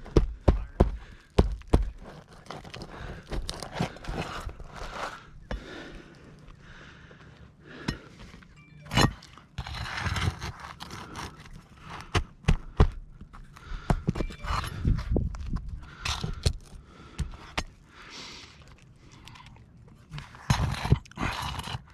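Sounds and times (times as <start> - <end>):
roof shingles scraping and crunching: 1.5 - 5.3, 9.6 - 12.1.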